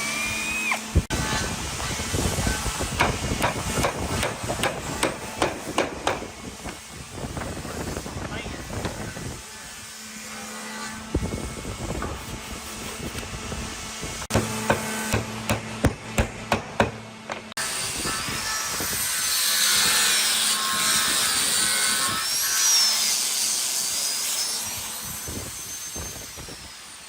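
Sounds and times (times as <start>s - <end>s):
power tool cutting wood: 0.0s - 27.0s
hammer knocks: 3.0s - 6.8s, 14.3s - 17.5s.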